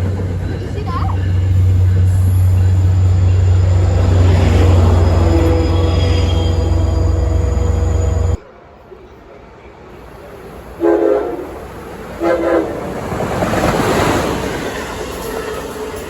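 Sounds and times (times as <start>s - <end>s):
train rumble: 0.0s - 16.0s
train horn blasts: 2.1s - 8.4s, 10.8s - 11.6s, 12.2s - 12.8s.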